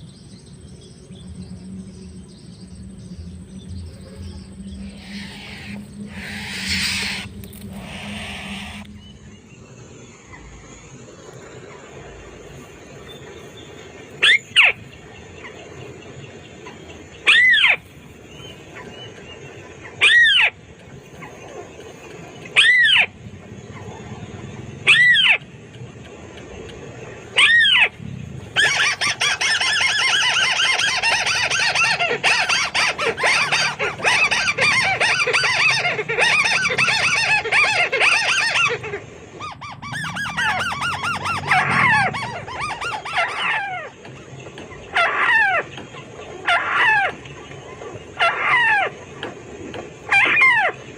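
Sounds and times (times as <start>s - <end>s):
bird arched call: 4.0s - 9.4s, 13.1s - 15.6s, 16.6s - 21.8s, 22.4s - 25.6s, 27.2s - 28.0s, 28.6s - 44.1s
bird rapid chattering: 27.2s - 43.9s.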